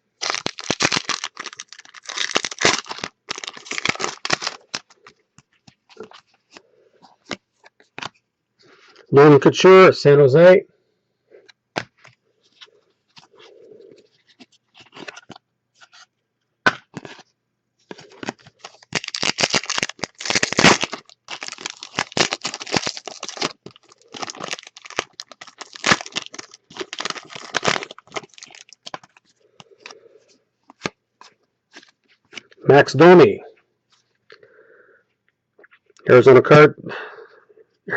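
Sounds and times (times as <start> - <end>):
wrapper tearing and crinkling: 0.2 - 5.1, 17.9 - 30.0
cards being handled: 0.2 - 8.2, 11.8 - 16.1, 16.7 - 30.0, 30.7 - 32.6.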